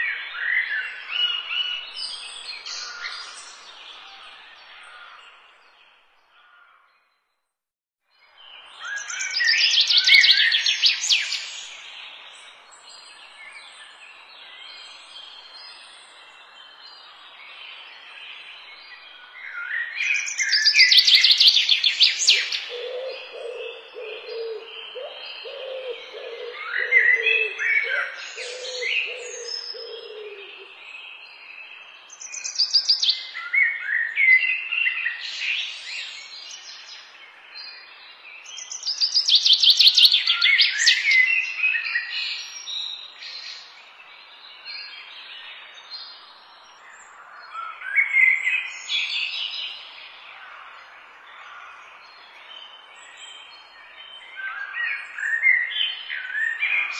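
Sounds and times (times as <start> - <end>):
birds singing and chirping: 0.0 - 7.0, 8.4 - 56.9
low repeated bird call: 18.6 - 30.8.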